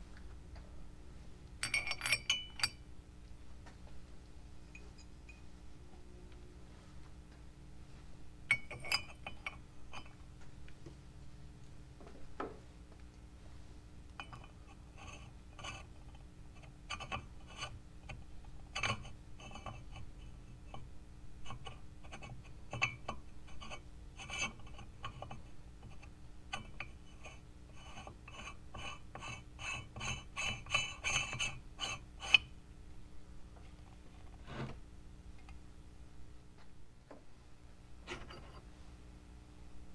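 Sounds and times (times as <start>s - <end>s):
metal parts clinking and scraping: 1.6s - 2.8s.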